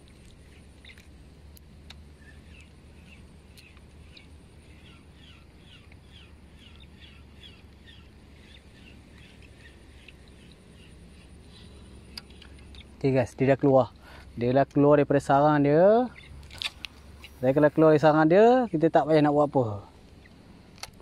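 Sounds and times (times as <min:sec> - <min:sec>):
faint sharp clicks: 0:09.1 - 0:10.6, 0:12.1 - 0:12.9, 0:20.0 - 0:21.0.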